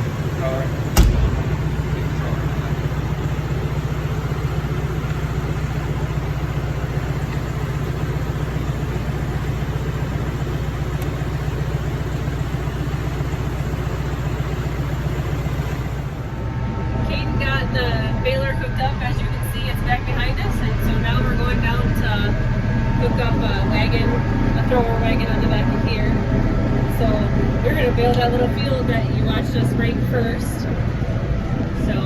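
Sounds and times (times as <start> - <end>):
tractor engine running: 0.0 - 32.0
sharp click: 1.0 - 1.6.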